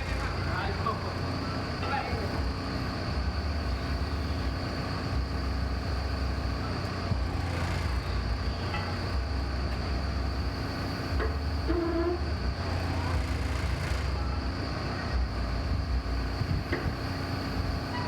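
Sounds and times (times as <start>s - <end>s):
machinery high whine: 0.0s - 18.0s
machinery low rumble: 0.0s - 18.0s.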